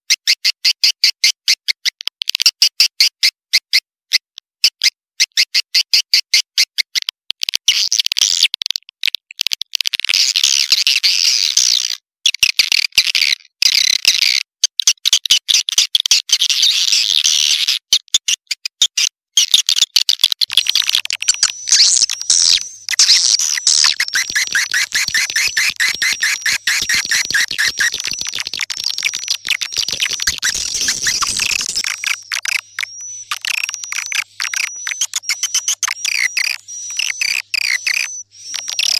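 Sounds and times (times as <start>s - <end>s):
swiftlet chittering trills: 20.5s - 38.9s.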